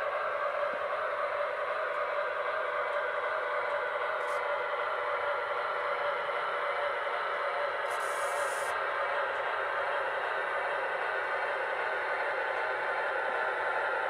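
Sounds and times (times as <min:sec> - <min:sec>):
short hiss: 0:07.9 - 0:08.7.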